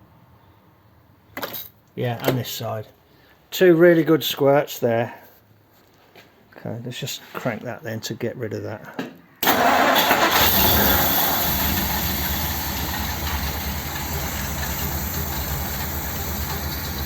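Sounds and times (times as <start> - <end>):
car engine cranking and running: 9.4 - 17.0.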